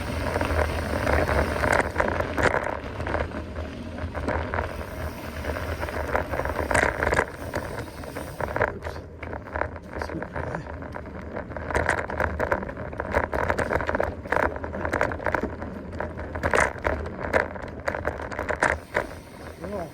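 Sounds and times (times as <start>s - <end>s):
bike clicking and rattling: 0.0s - 19.9s
bike tyres on rough trail: 0.0s - 19.9s
wind rumbling on microphone: 0.0s - 19.9s.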